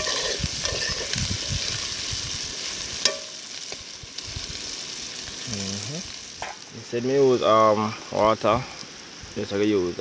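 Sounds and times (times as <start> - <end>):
metal spoon scraping a pot: 0.0 - 1.3
meat and onion sizzling in a pot: 0.0 - 10.0.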